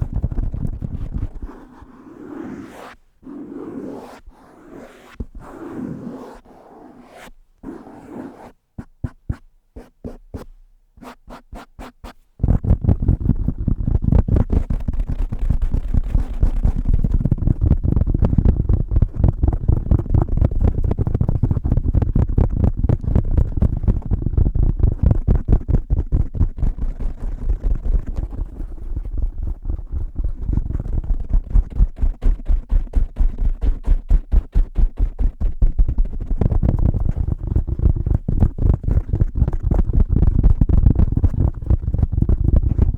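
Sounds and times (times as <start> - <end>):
fingertips tapping on microphone: 8.8 - 42.9.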